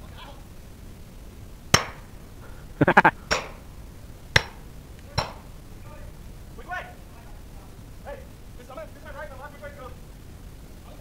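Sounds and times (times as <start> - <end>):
sharp ringing knocks: 4.4 - 4.6, 5.2 - 5.5.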